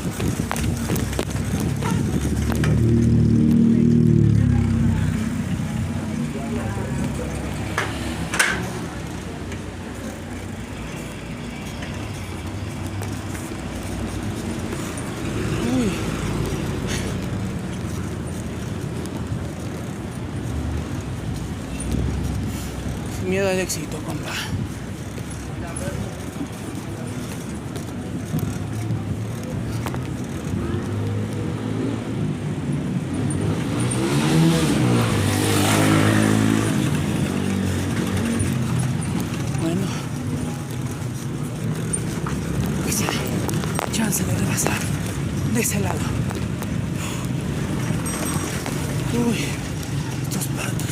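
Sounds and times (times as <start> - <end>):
passing motor traffic: 0.0 - 50.9
wind and road noise: 0.0 - 50.9
vehicle engine passing: 28.4 - 50.2.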